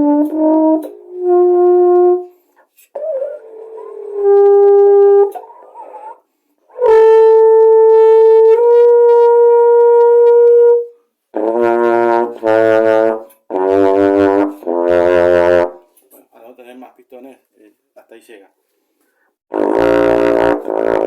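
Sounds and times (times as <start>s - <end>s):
brass horn playing scale notes: 0.0s - 6.0s, 6.7s - 16.0s, 19.5s - 21.0s.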